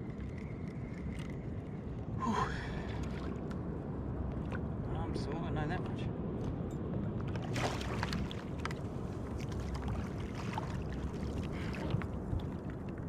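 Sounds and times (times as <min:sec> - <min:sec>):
wind rumble on microphone: 0:00.0 - 0:13.0
water lapping against kayak hull: 0:07.4 - 0:13.0.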